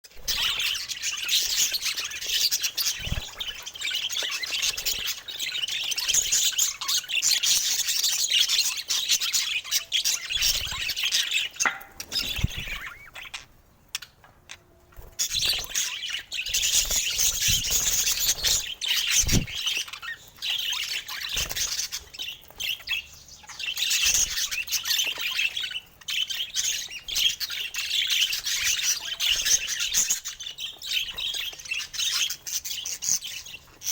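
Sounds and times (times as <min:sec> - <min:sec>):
budgies chattering and warbling: 0:00.1 - 0:33.9.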